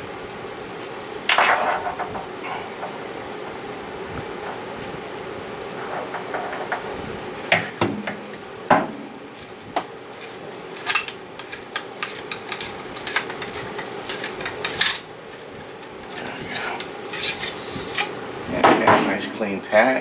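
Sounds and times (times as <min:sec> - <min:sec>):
cleaning rod scraping in gun barrel: 0:10.2 - 0:15.1, 0:16.2 - 0:18.2.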